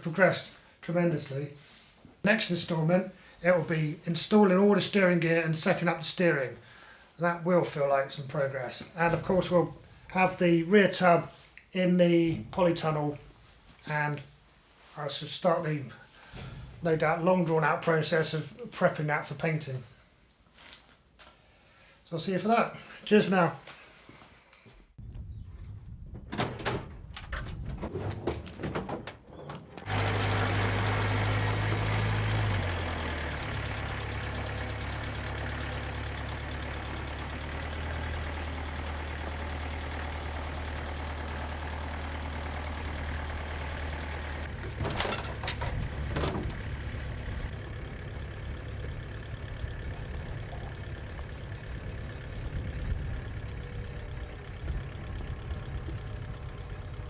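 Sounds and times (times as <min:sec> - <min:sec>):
engine starting and idling: 0:29.8 - 0:57.0
clicks and knocks: 0:44.6 - 0:46.6.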